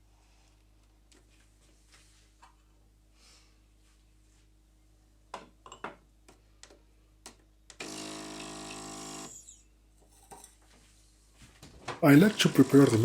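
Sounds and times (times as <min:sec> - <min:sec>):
espresso machine pump buzzing: 0:07.8 - 0:09.6, 0:12.0 - 0:13.0.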